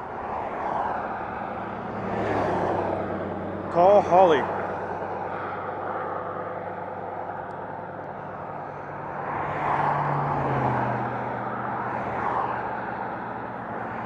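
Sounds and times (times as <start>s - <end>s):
highway traffic: 0.0s - 14.0s
vehicle passing close: 0.0s - 14.0s.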